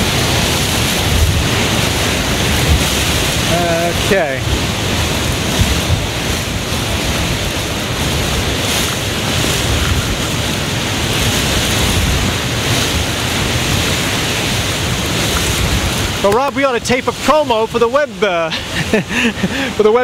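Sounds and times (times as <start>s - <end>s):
driving rain: 0.0s - 20.0s
strong wind blowing: 0.0s - 20.0s
wind buffeting microphone: 0.0s - 20.0s.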